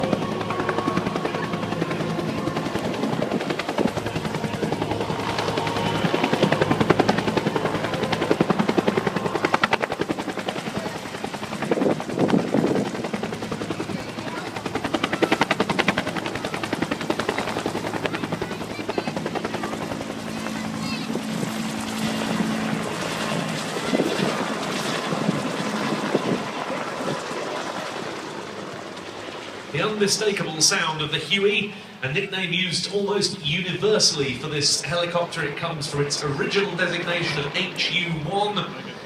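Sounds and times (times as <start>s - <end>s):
turbine engine: 0.0s - 27.3s
helicopter rotor beating: 0.0s - 39.0s.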